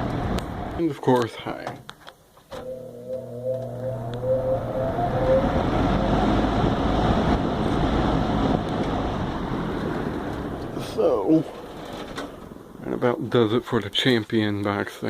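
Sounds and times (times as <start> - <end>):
box fan motor whine and air rush: 2.6 - 10.8.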